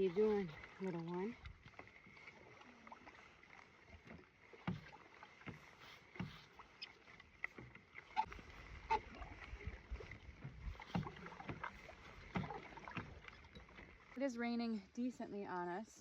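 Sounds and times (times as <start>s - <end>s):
paddle strokes in water: 0.0s - 15.5s.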